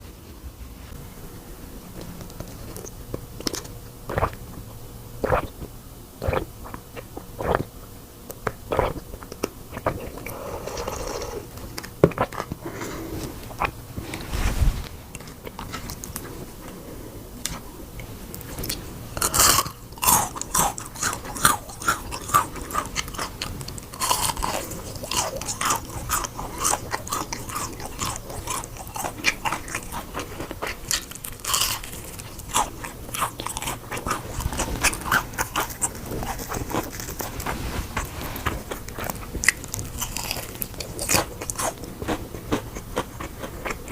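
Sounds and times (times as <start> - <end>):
person crunching food: 2.3 - 4.6, 8.3 - 14.2, 18.4 - 43.9.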